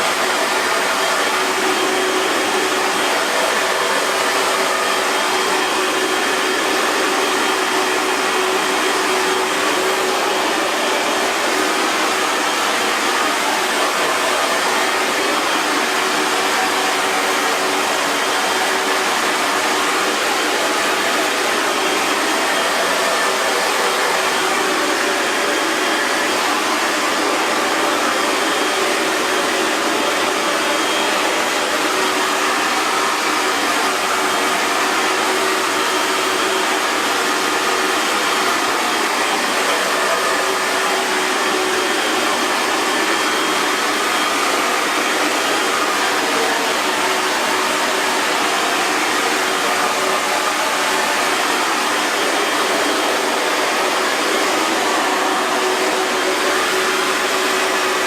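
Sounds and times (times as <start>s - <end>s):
hair dryer blowing: 0.0s - 58.0s.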